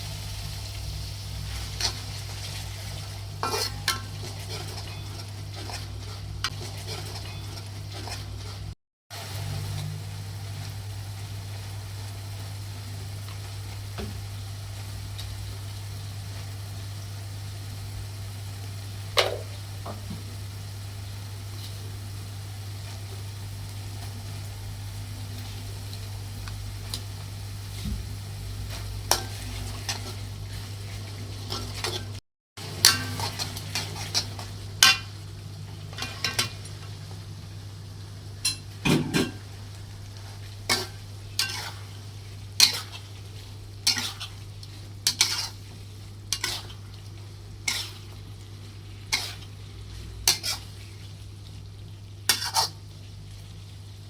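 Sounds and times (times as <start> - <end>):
chicken sizzling: 0.0 - 54.0
spatula scraping frying pan: 1.4 - 8.8, 28.7 - 35.1, 38.4 - 39.6, 40.2 - 51.2, 52.2 - 52.8.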